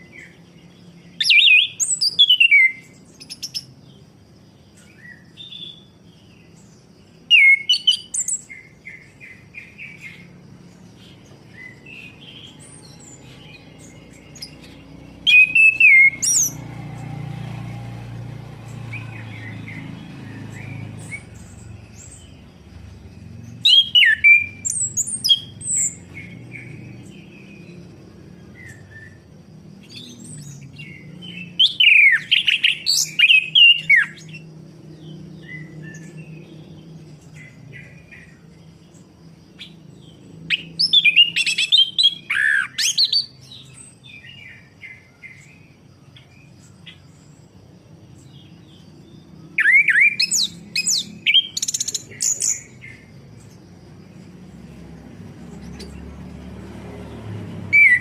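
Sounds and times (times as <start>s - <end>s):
soft bird chirps: 0.0s - 58.0s
thrush singing: 11.6s - 28.6s.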